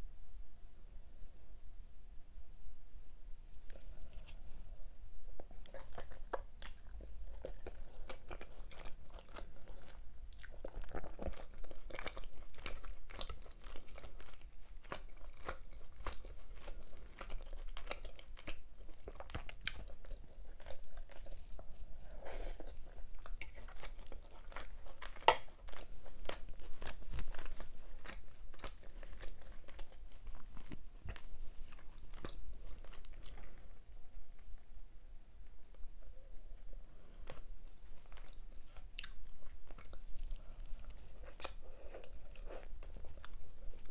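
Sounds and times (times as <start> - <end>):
person chewing food: 3.5 - 34.5, 35.7 - 43.9.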